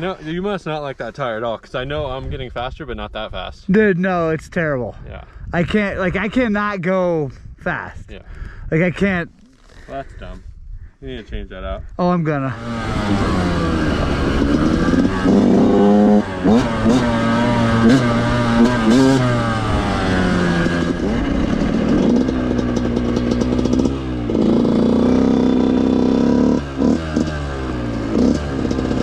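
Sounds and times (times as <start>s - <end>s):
dirt bike engine revving: 12.5s - 29.0s.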